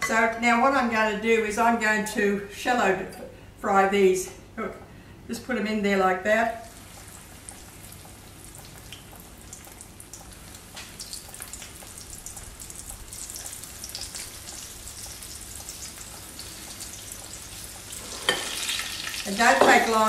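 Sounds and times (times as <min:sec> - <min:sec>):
croquettes sizzling in frying oil: 0:06.6 - 0:20.0.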